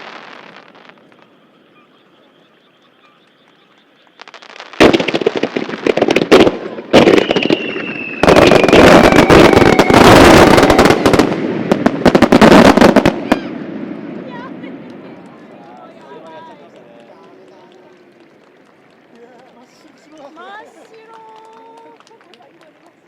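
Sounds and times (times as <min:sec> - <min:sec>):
falling firework whistle: 0:00.0 - 0:13.7
fireworks bangs and crackles: 0:00.0 - 0:23.0.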